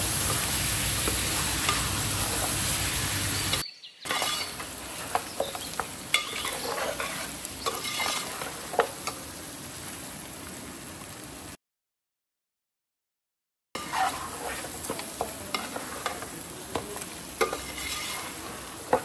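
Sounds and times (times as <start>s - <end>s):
food sizzling in a pot: 0.0s - 11.6s, 13.8s - 19.0s
spoon scraping and clinking pot: 3.5s - 9.2s, 13.8s - 16.3s, 17.4s - 19.0s.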